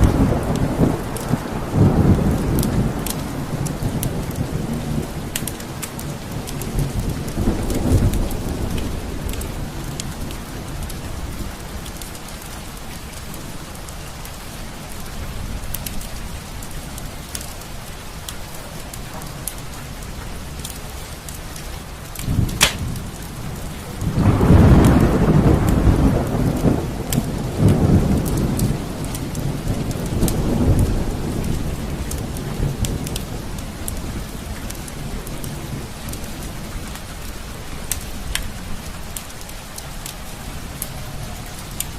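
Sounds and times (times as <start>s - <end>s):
steady rain: 0.0s - 41.9s
thunder rumbling: 22.2s - 34.5s.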